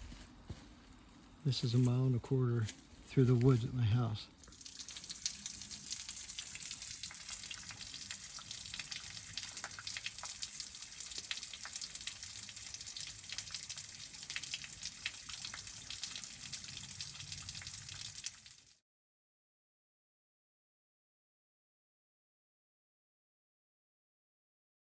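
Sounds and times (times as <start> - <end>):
running water splashing: 4.4 - 18.6.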